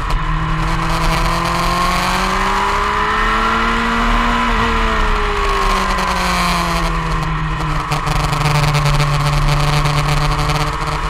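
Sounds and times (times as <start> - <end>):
motorcycle engine: 0.0 - 11.0.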